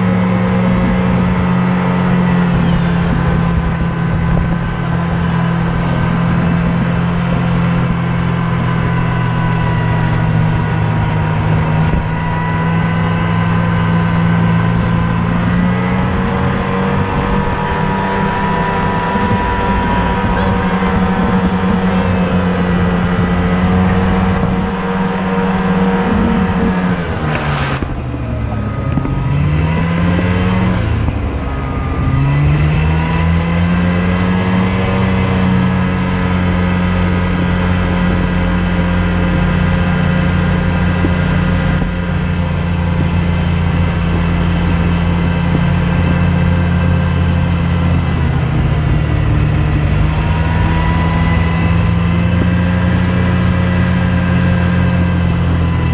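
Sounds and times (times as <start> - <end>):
vehicle engine running: 0.0 - 55.9.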